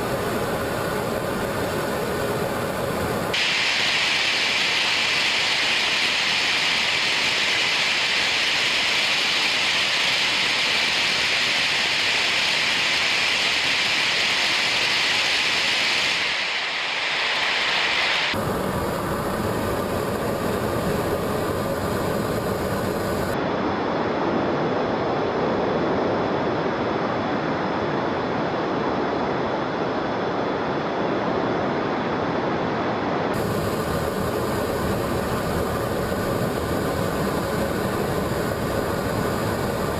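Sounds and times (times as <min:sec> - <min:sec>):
small jet engines running: 0:00.0 - 0:23.4, 0:33.0 - 0:39.9.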